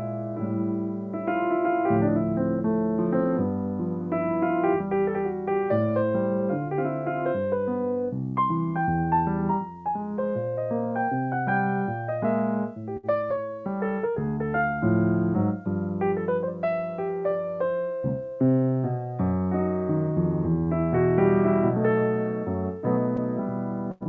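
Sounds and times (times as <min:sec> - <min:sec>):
solo piano playing chords: 0:00.0 - 0:24.0.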